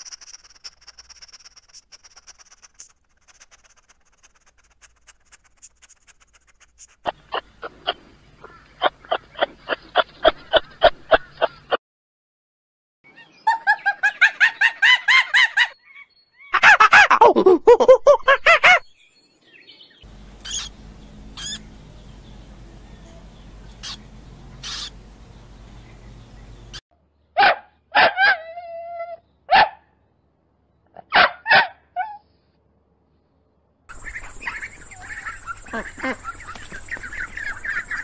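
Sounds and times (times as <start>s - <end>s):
monkey chattering calls: 0.0s - 2.6s, 20.4s - 20.8s, 21.4s - 21.7s, 23.7s - 24.0s, 24.6s - 25.0s, 33.9s - 38.0s
puppy yipping and barking: 18.5s - 18.8s, 27.4s - 29.8s, 31.0s - 32.3s
low hum: 20.1s - 26.8s.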